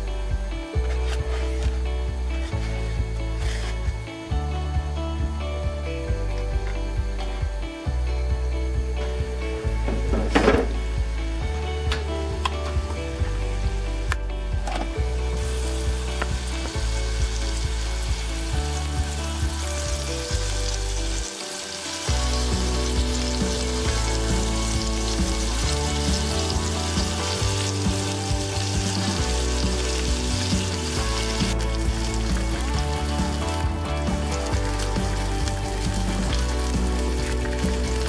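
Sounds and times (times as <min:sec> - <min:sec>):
background music: 0:00.0 - 0:38.0
patties sizzling in oil: 0:15.4 - 0:38.0.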